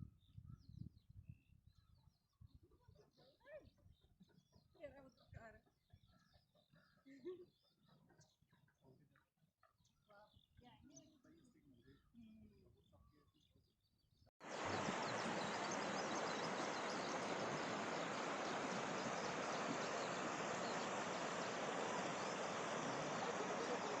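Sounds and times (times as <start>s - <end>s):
faint high bird chirps: 14.4s - 24.0s
outdoor ambience hiss: 14.4s - 24.0s.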